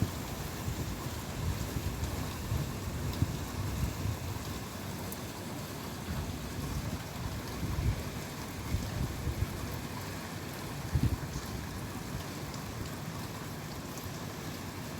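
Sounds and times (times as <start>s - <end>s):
faint rain patter: 0.0s - 14.9s
wind gusts rumbling on microphone: 10.9s - 11.3s.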